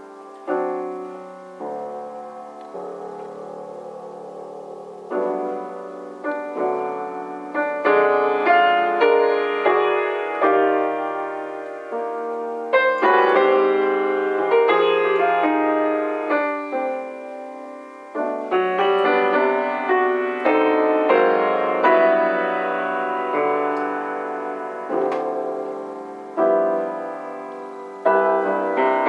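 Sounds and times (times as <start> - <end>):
solo piano jazz ballad: 0.0 - 29.0.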